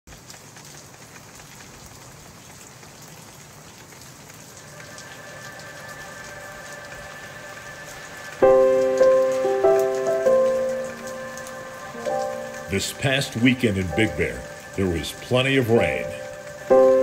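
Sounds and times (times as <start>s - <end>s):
steady rain falling: 0.1s - 17.0s
faint music: 4.6s - 17.0s
loud chord: 8.4s - 17.0s.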